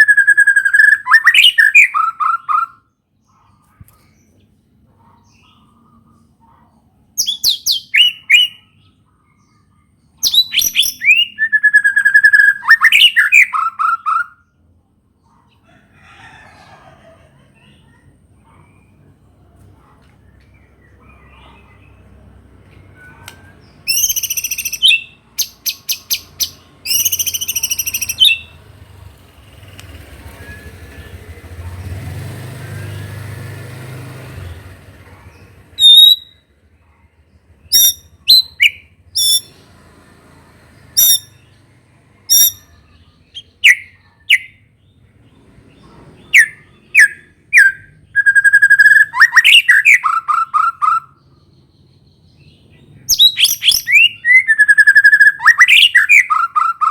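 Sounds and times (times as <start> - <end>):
songbird singing trills and whistles: 0.0 - 2.9, 7.2 - 14.6, 22.7 - 28.6, 35.8 - 36.4, 37.6 - 39.5, 41.0 - 41.4, 42.3 - 44.7, 46.2 - 56.9.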